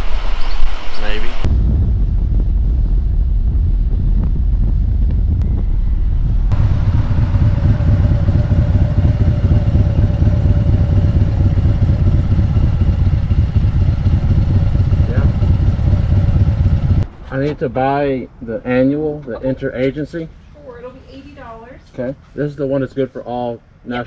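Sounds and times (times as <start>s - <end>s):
steady hum: 0.0s - 17.1s
wind rumble on microphone: 0.0s - 17.1s
motorcycle engine running: 1.8s - 17.0s.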